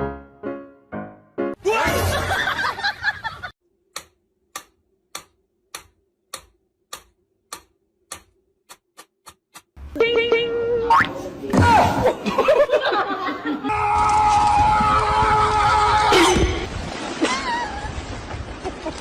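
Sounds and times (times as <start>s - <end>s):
clock ticking: 3.9s - 9.8s.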